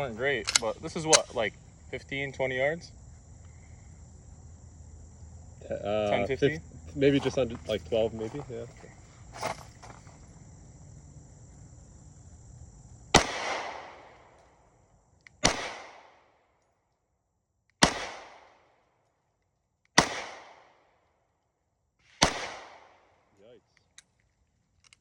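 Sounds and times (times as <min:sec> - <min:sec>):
pistol shots with echo: 0:13.1 - 0:14.3, 0:15.4 - 0:16.3, 0:17.8 - 0:18.7, 0:20.0 - 0:20.9, 0:22.2 - 0:23.1.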